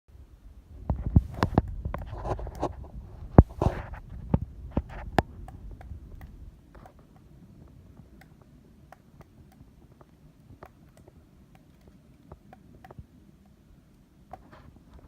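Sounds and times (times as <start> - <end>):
woodpecker pecking at wood: 8.0 - 13.6.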